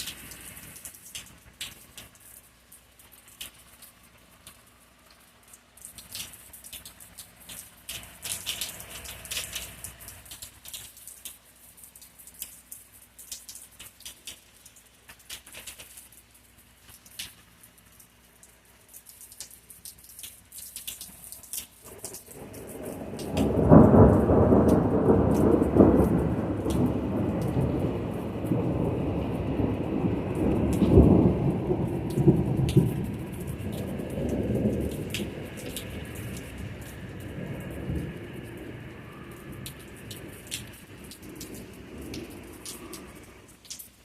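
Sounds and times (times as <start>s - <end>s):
rain tapping: 0.0s - 44.0s
rolling thunder: 21.9s - 43.4s.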